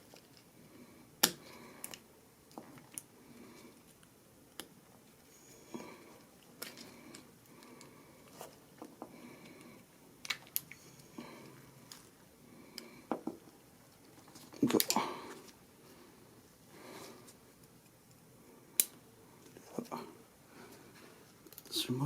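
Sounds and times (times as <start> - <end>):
small metal and plastic parts clicking: 10.2 - 11.1.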